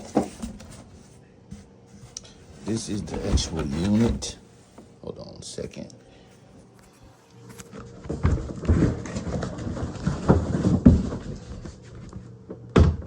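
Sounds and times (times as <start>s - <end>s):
knocks and thumps: 8.0s - 11.6s.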